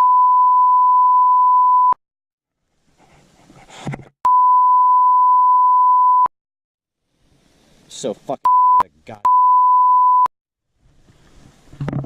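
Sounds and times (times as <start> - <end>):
censor bleep: 0.0 - 2.0, 4.3 - 6.3, 8.5 - 10.3.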